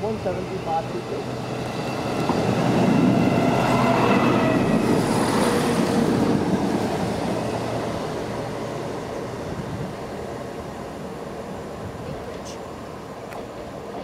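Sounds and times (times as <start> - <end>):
diesel train rumble: 0.0 - 14.0.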